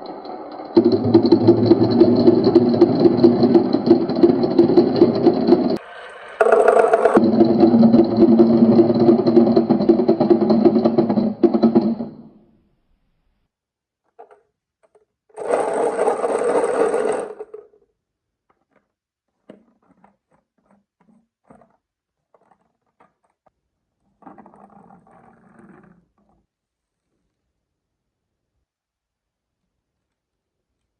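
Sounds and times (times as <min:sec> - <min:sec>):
marbles rolling down wooden run: 0:00.0 - 0:12.3, 0:15.4 - 0:17.7.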